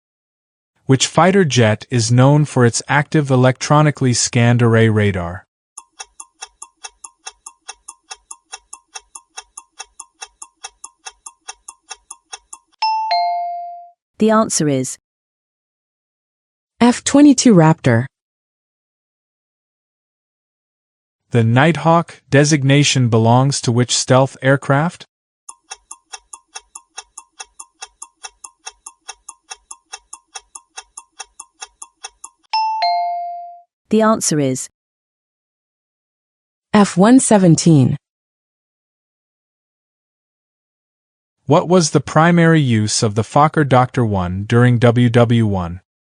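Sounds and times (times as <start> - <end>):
quick clock ticks: 5.8 - 12.8, 25.5 - 32.5.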